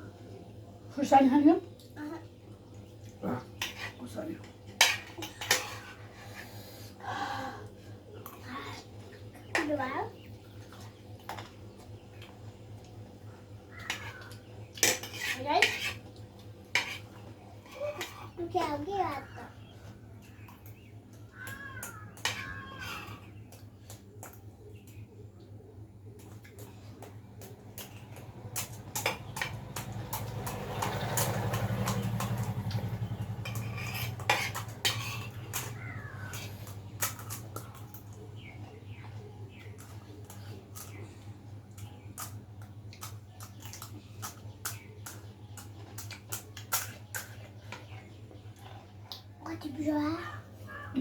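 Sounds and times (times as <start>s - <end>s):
spoons clinking on dishes: 3.6s - 6.0s, 27.4s - 38.1s.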